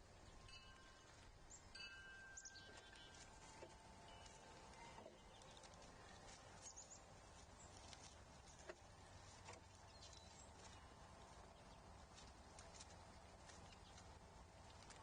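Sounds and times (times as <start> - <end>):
low steady rumble: 0.0 - 15.0
faint high bird chirps: 0.2 - 3.4.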